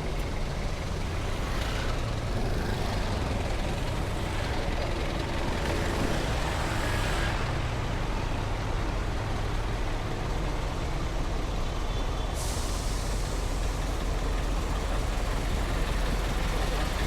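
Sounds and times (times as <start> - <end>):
heavy road traffic rumble: 0.0 - 17.0
air brake release hiss: 12.3 - 16.5.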